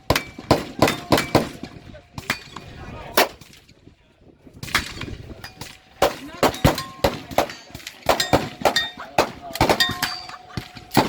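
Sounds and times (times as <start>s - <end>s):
steel targets ringing: 4.8s - 9.1s, 9.7s - 11.0s
gunshots: 6.0s - 10.2s.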